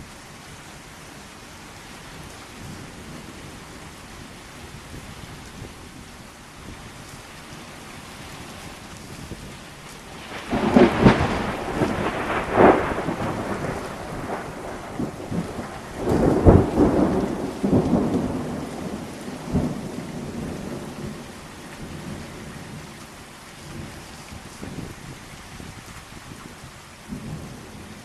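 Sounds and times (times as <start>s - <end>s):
heavy rain: 0.0s - 28.0s
thunder cracking and rumbling: 9.1s - 23.0s, 23.7s - 28.0s.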